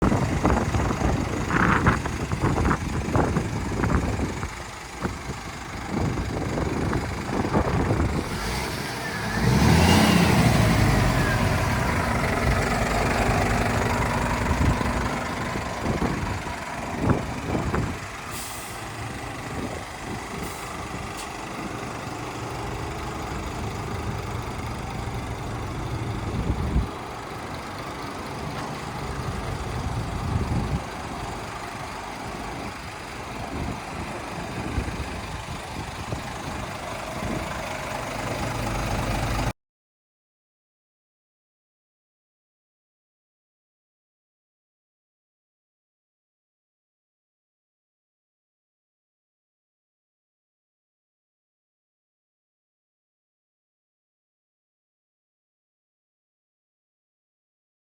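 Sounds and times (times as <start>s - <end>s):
diesel truck engine running: 0.0s - 39.5s
short air hisses: 18.3s - 18.9s.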